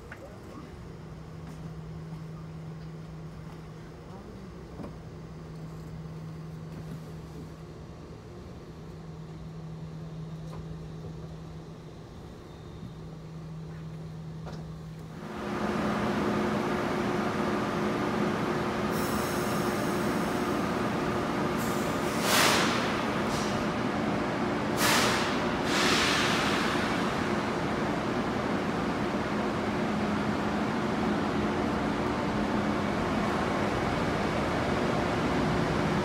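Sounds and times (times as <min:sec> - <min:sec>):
train humming and rumbling: 0:00.0 - 0:36.0
short hiss: 0:24.8 - 0:26.8.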